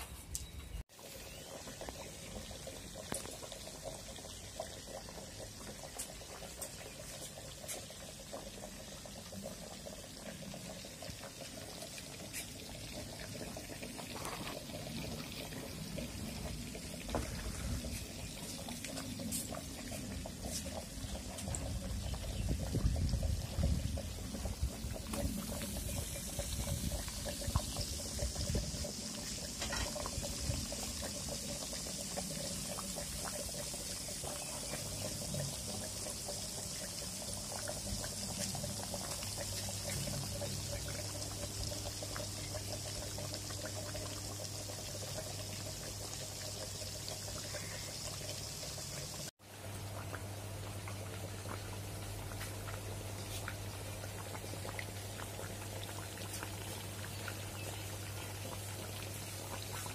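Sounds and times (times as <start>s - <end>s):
liquid bubbling: 1.0s - 59.9s
food sizzling in a pan: 25.4s - 49.3s.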